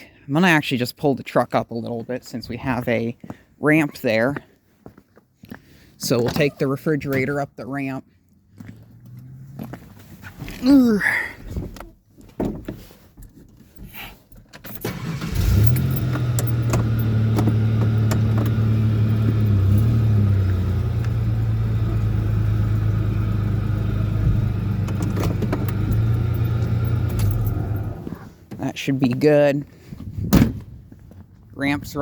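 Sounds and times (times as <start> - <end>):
truck engine running: 14.9 - 28.1.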